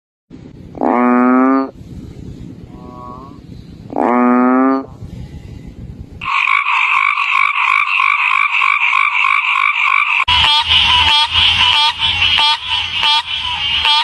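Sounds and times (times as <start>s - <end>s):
frogs croaking: 6.2s - 14.0s.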